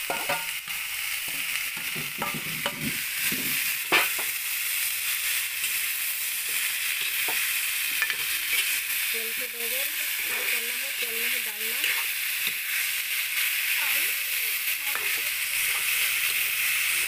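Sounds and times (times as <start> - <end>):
food sizzling in a pan: 0.0 - 17.0
metal spatula scraping pan: 10.1 - 12.6, 14.9 - 16.5.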